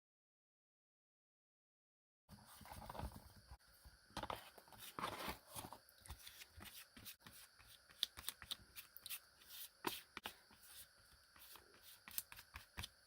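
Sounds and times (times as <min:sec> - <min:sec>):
paper rustling: 0:04.2 - 0:09.2.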